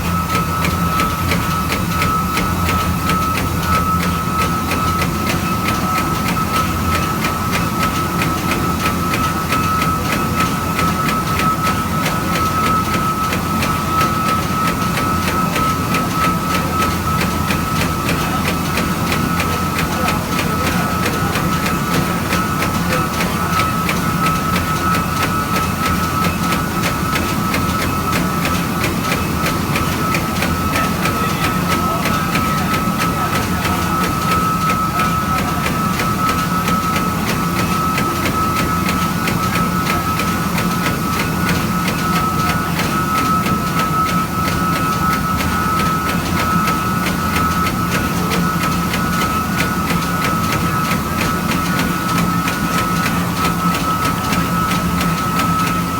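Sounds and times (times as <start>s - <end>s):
low machine hum: 0.0s - 55.9s.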